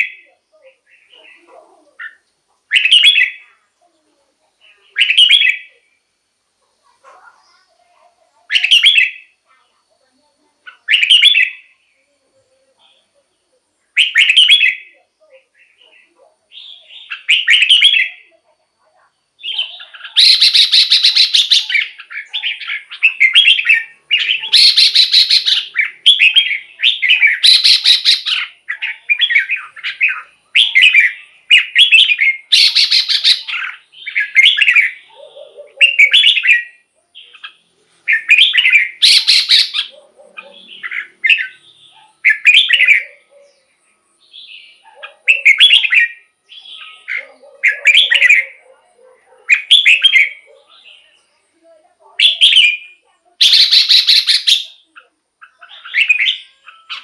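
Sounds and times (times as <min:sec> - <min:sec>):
bulbul singing whistled phrases: 0:00.0 - 0:03.7, 0:04.6 - 0:06.0, 0:08.5 - 0:09.4, 0:10.7 - 0:18.4, 0:19.4 - 0:48.7, 0:49.5 - 0:51.4, 0:52.2 - 0:57.0.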